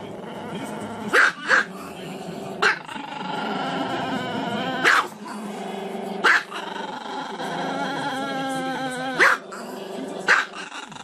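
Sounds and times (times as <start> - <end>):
dog barking: 1.1 - 1.7, 2.6 - 2.9, 4.8 - 5.2, 6.2 - 6.6, 9.2 - 9.5, 10.3 - 10.7.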